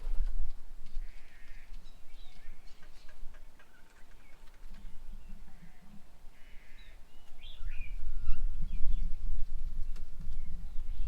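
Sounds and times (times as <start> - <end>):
birds chirping and whistling: 6.4 - 9.2, 9.8 - 11.0.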